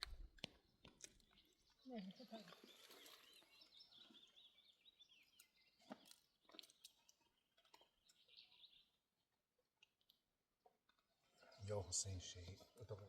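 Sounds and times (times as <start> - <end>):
faint bird chirping: 0.1 - 9.2.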